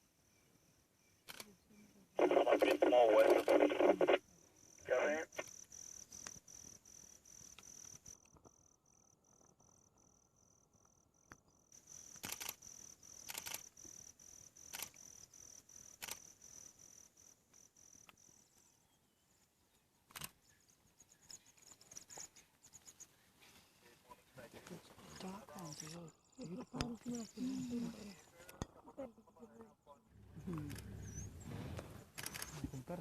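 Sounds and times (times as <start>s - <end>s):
crickets chirping: 0.0s - 33.0s
short clicks: 2.6s - 4.0s.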